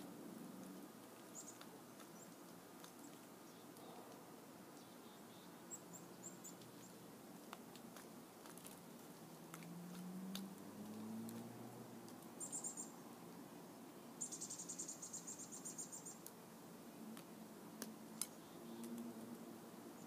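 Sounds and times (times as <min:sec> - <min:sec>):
faint high bird chirps: 0:01.3 - 0:02.4, 0:04.8 - 0:07.0, 0:12.4 - 0:13.0, 0:14.0 - 0:16.2, 0:18.3 - 0:19.0.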